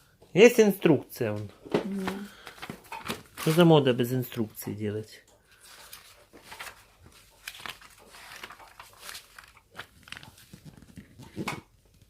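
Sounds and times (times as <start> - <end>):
paper rustling: 2.0 - 4.2, 5.5 - 12.0.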